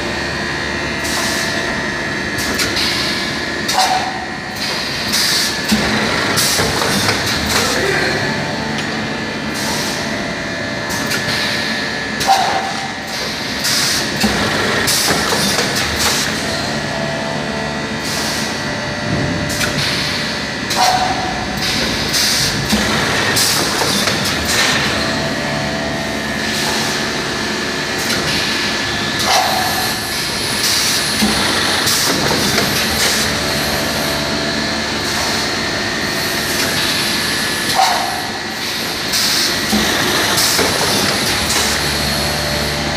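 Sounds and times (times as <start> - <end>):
faint steady machine whine: 0.0 - 42.9
packaging machine clatter and knocking: 5.6 - 7.8, 14.1 - 16.5, 20.8 - 25.2, 29.2 - 33.4, 39.2 - 42.2.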